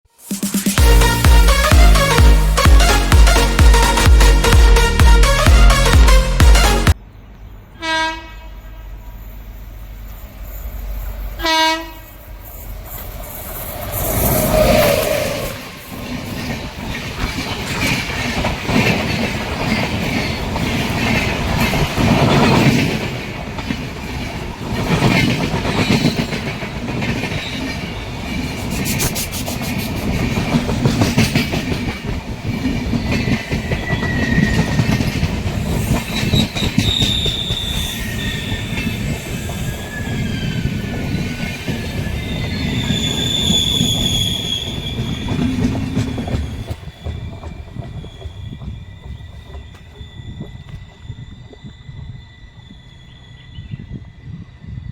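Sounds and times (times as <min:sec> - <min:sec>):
locomotive horn blasts: 0:00.8 - 0:07.0, 0:07.8 - 0:09.0, 0:11.4 - 0:12.1
train clattering over rail joints: 0:15.8 - 0:51.9
wheel squeal: 0:32.6 - 0:54.9.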